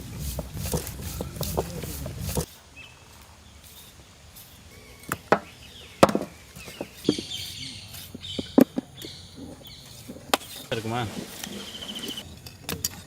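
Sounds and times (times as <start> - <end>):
chopping knocks: 5.1 - 7.2.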